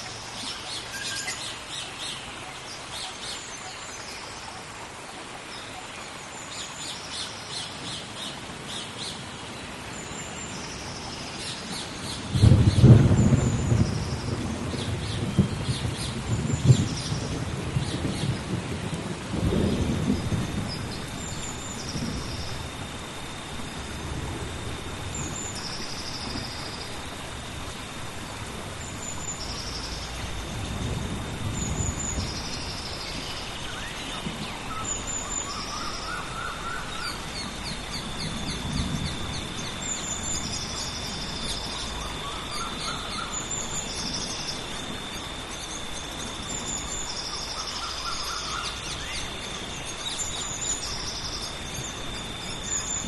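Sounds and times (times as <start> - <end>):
insect droning: 0.0 - 53.0
steady rain: 0.0 - 53.0
rolling thunder: 12.3 - 47.2.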